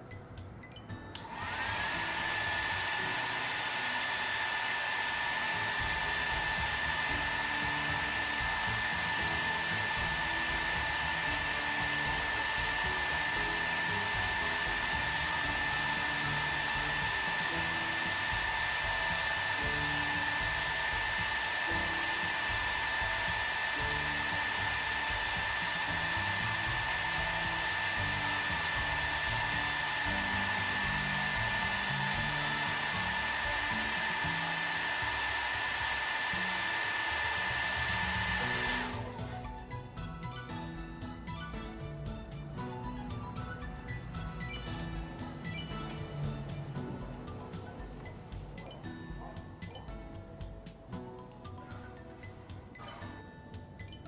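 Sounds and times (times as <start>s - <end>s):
ventilation fan whining: 1.1s - 39.5s.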